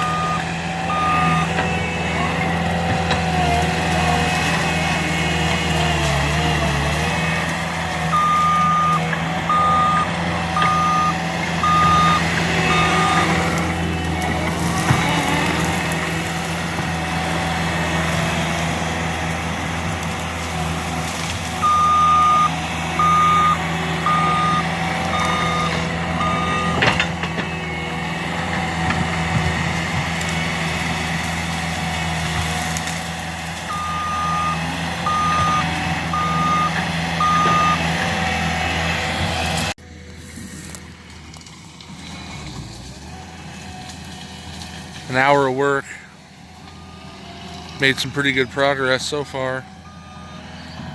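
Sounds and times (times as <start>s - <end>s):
reversing alarm beeps: 0.0s - 1.6s, 8.1s - 13.4s, 21.6s - 27.1s, 33.7s - 37.8s, 49.8s - 50.8s
skid steer engine running: 0.0s - 50.9s.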